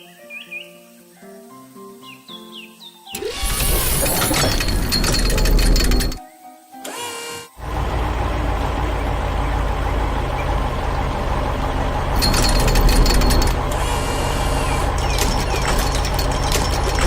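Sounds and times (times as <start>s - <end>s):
rapid clattering: 3.2s - 6.2s, 7.6s - 17.0s
construction machine engine rumble: 7.6s - 17.0s.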